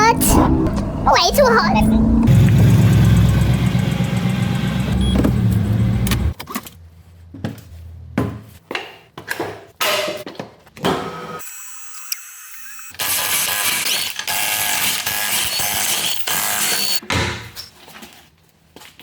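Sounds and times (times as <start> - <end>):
car engine running: 0.0 - 6.4
knocks and clicks: 0.3 - 6.4.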